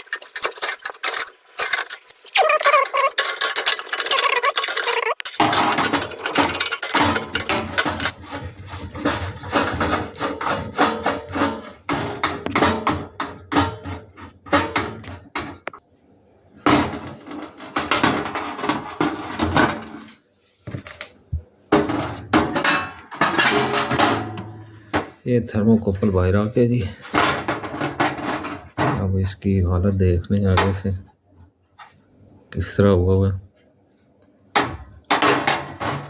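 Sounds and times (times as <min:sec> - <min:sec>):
tools clinking on metal parts: 0:00.0 - 0:08.2, 0:09.2 - 0:10.7.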